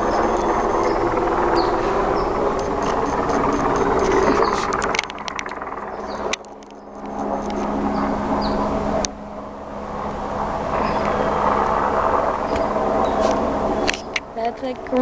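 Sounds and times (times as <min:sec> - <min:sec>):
helicopter hovering: 0:00.0 - 0:15.0
sharp clicks: 0:02.5 - 0:07.8, 0:13.3 - 0:15.0.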